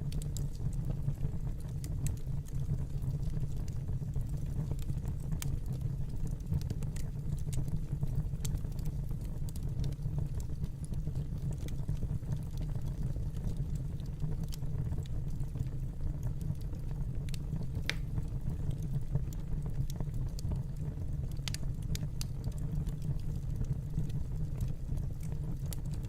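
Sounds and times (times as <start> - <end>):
fireplace fire crackling: 0.0 - 26.0.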